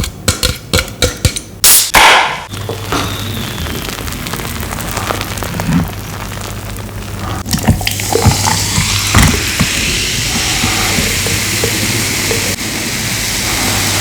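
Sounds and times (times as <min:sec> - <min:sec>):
cola fizzing in a glass: 0:07.4 - 0:14.0.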